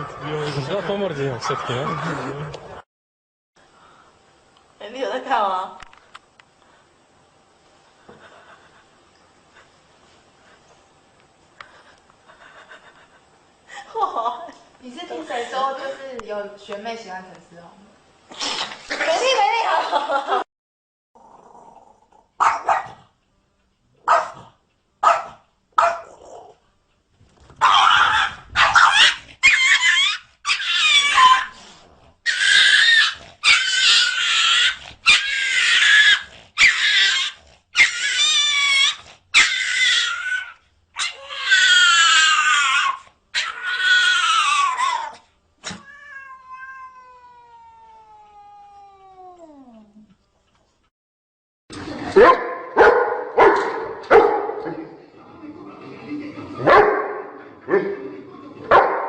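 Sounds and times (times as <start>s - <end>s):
cats yowling: 27.6s - 31.6s, 32.3s - 49.9s.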